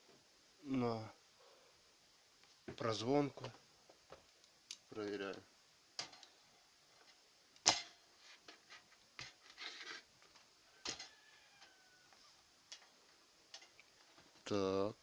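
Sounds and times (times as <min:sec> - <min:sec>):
clicks and knocks of handled parts: 0:06.0 - 0:06.4, 0:12.7 - 0:14.5.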